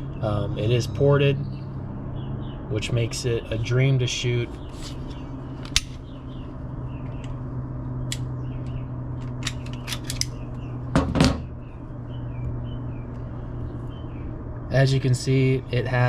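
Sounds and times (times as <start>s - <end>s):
steady low hum: 0.0s - 16.0s
pistol metallic clicks: 5.6s - 6.0s, 9.2s - 10.4s.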